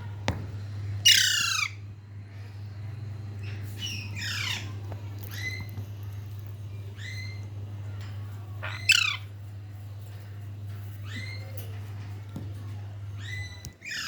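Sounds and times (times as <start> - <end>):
parrot squawking: 1.0 - 1.8, 8.6 - 9.3.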